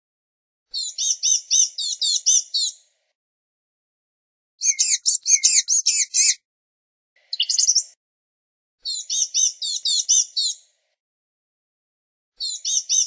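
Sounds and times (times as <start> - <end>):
bird calling high thin notes: 4.6 - 6.4.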